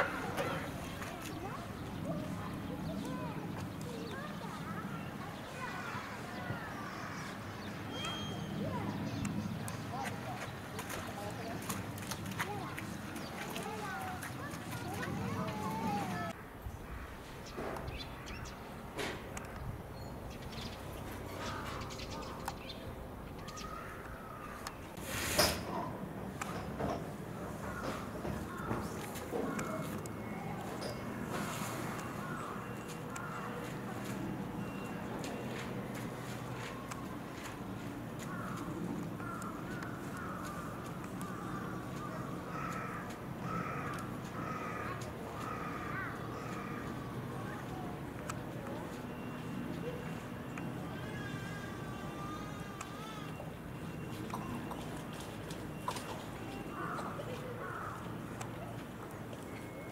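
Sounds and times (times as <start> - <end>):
wild birds chirping: 0.0 - 25.0, 27.3 - 35.6, 38.0 - 47.9, 52.1 - 59.9
bird calling: 49.0 - 59.9.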